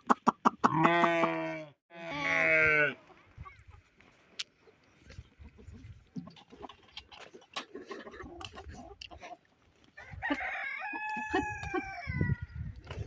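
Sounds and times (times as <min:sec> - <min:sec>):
rooster crowing: 0:10.0 - 0:12.2.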